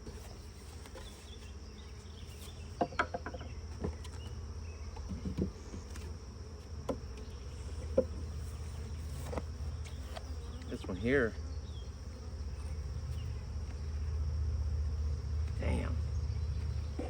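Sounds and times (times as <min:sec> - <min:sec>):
honeybees buzzing: 0:00.0 - 0:17.0
wooden hive frames knocking: 0:02.3 - 0:11.0.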